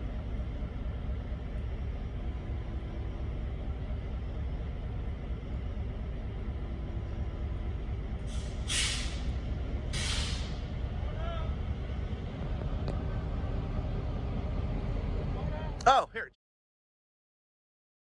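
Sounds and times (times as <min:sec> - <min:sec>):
diesel locomotive rumbling: 0:00.0 - 0:16.3
air hissing: 0:08.3 - 0:10.7.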